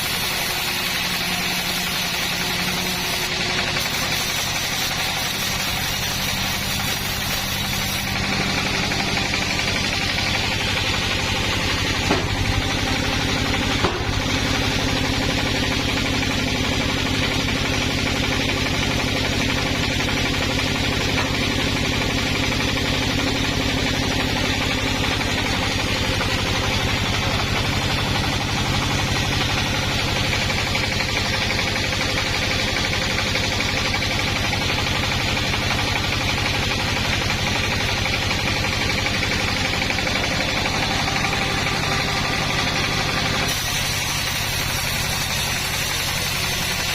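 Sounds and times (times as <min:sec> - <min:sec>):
engine running steadily: 0:00.0 - 0:46.9
brief knock: 0:12.1 - 0:12.4, 0:13.8 - 0:14.1.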